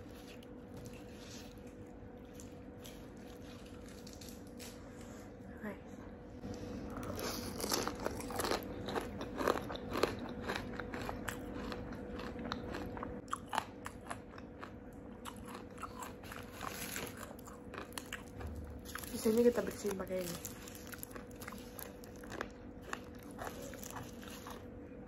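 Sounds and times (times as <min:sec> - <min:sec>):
crunchy bites of fried chicken: 0:07.0 - 0:19.1.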